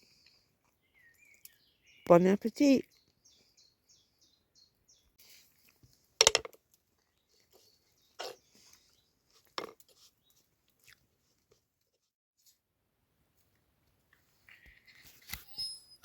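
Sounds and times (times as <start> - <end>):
faint chewing: 6.7 - 12.1.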